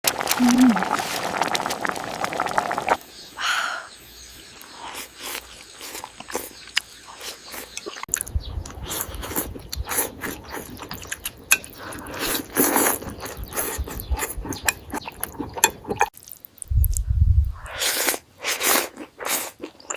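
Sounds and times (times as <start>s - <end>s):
biting and chewing food: 4.6s - 17.1s, 18.1s - 19.9s.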